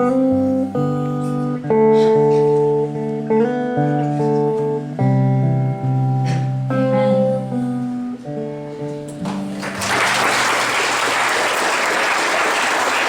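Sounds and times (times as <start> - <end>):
music with held chords: 0.0 - 9.7
audience applause: 9.3 - 13.0.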